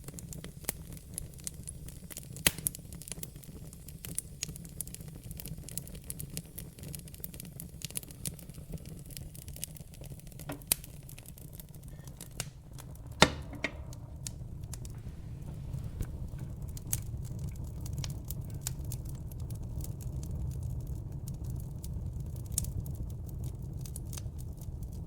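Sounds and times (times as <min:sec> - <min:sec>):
low rumble of flames: 0:00.0 - 0:25.0
wood fire crackling and popping: 0:00.0 - 0:25.0.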